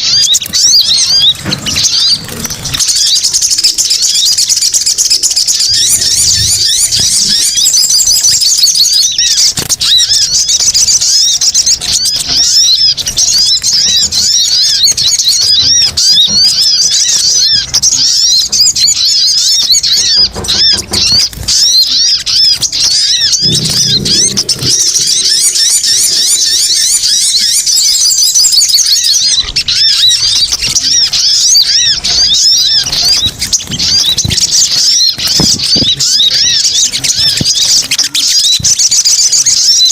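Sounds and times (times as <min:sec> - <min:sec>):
high-pitched bird chattering: 0:00.0 - 0:39.9.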